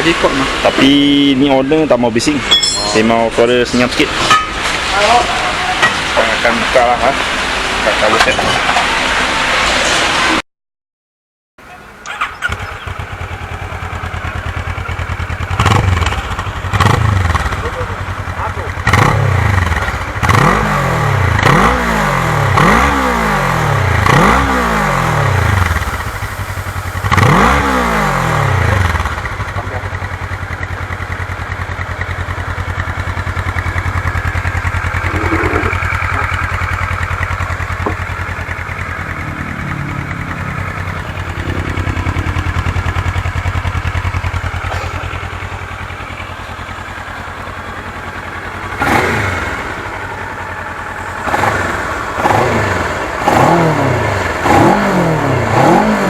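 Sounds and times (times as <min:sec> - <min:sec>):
motorcycle engine idling: 0:11.6 - 0:54.4
motorcycle engine revving: 0:12.0 - 0:56.0.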